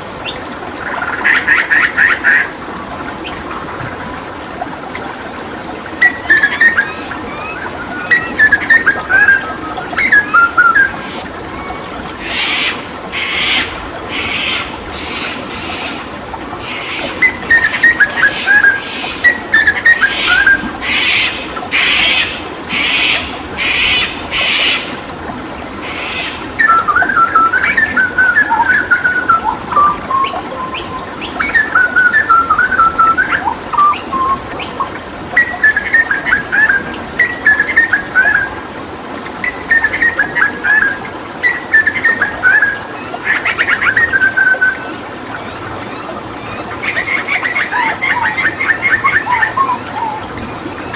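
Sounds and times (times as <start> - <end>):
running water: 0.0 - 50.9
bird singing whistled phrases: 6.0 - 11.9, 26.6 - 34.8.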